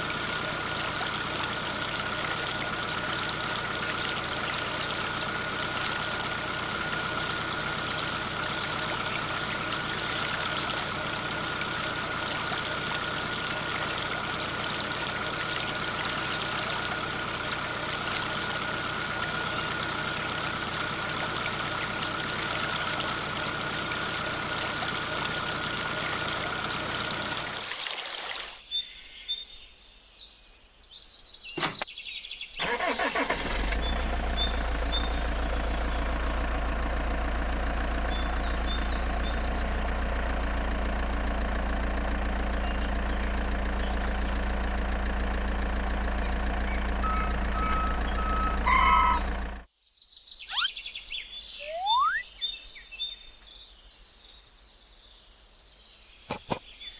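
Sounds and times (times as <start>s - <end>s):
deep low engine hum: 0.0s - 27.6s, 33.4s - 49.7s
small motor whining: 36.9s - 49.6s.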